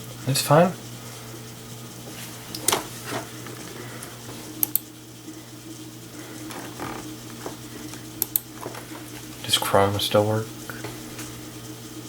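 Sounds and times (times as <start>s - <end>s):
low hum: 2.4s - 9.6s
computer mouse clicking: 4.6s - 4.9s, 6.6s - 8.9s.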